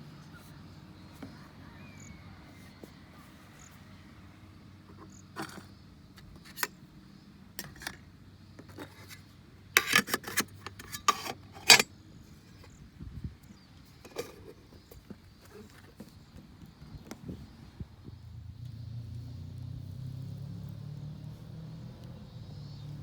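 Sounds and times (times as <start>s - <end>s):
handling scrapes and clicks: 4.9s - 6.8s, 7.6s - 11.9s, 13.9s - 16.2s.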